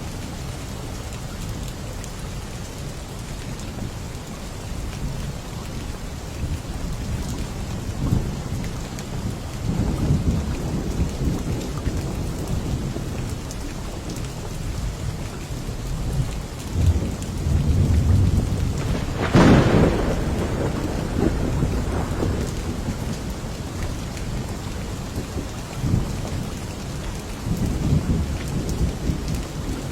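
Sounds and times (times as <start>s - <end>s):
steady rain: 0.0s - 29.9s
low rolling thunder: 7.0s - 14.2s, 16.0s - 29.9s
sharp thunderclap: 16.8s - 23.6s.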